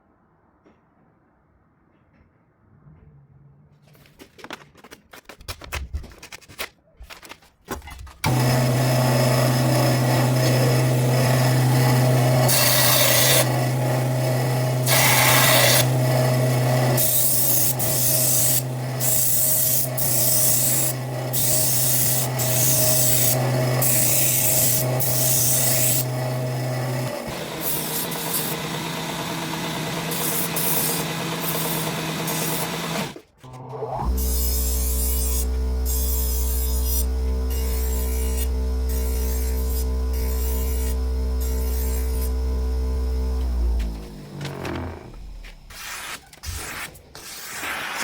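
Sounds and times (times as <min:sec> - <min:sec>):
sharpener motor humming: 0:08.2 - 0:45.9
blade grinding hiss: 0:45.6 - 0:48.0.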